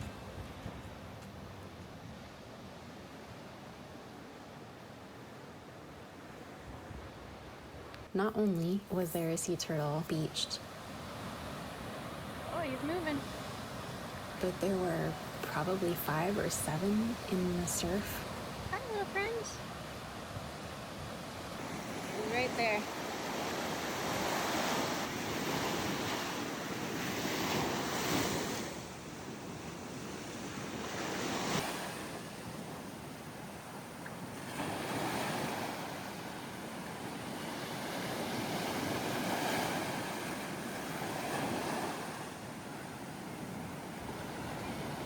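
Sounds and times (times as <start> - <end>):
ocean surf breaking: 10.1 - 45.0.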